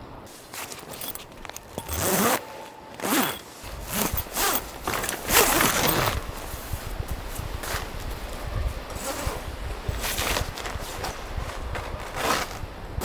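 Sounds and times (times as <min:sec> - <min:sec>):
zipper rasping: 0:00.5 - 0:06.3, 0:12.0 - 0:12.6.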